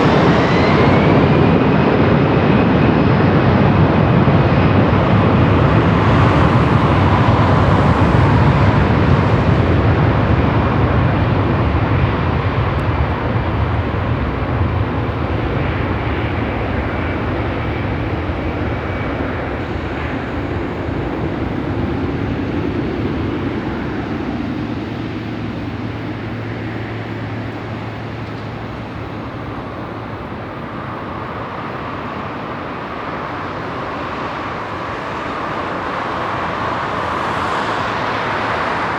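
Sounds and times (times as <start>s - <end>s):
faint jet engine whine: 0.0s - 38.9s
jet engines rumbling: 0.0s - 38.9s.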